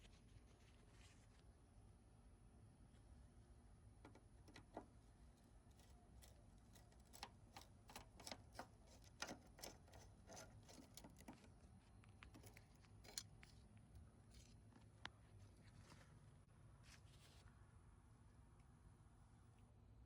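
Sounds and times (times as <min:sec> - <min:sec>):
faint clicks and taps: 0:04.0 - 0:15.2.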